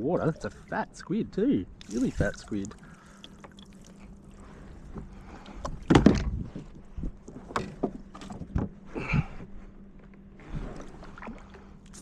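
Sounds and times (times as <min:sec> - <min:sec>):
knocks and bumps on kayak: 0:05.7 - 0:08.8.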